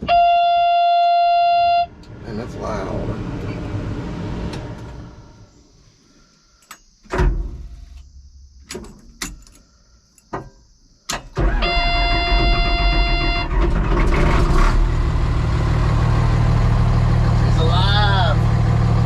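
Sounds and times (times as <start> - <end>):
steady warning tone: 0.0 - 3.9, 11.5 - 13.5
low engine rumble: 1.6 - 6.1, 14.0 - 19.0
sharp clicks and knocks: 8.6 - 11.3.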